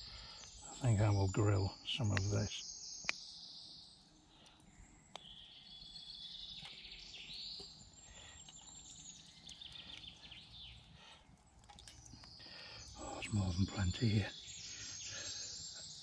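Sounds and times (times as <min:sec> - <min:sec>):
faint birdsong: 0:00.0 - 0:16.0.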